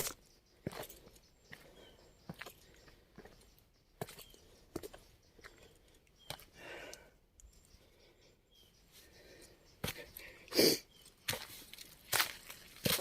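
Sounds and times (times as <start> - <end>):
footsteps on dirt path: 0.0 - 7.0, 9.8 - 10.4, 11.0 - 13.0.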